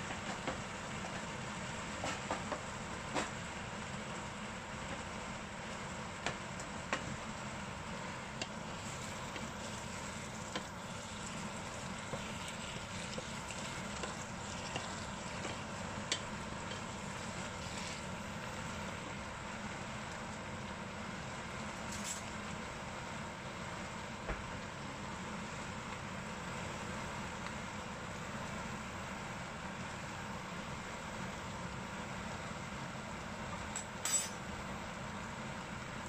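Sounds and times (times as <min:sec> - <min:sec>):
vegetable sizzling in a pot: 0:00.1 - 0:22.9.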